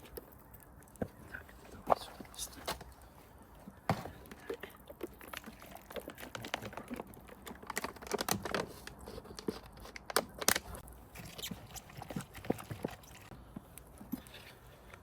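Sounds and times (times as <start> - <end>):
small clicks and knocks: 3.9 - 10.8
plastic packaging crinkling: 5.0 - 10.8.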